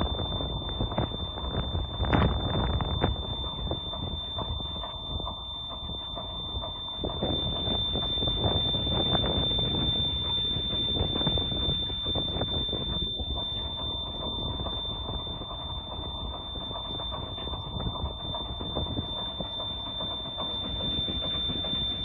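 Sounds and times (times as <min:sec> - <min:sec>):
boat engine rumble and clatter: 0:00.0 - 0:22.0
high-pitched whine: 0:00.0 - 0:22.0.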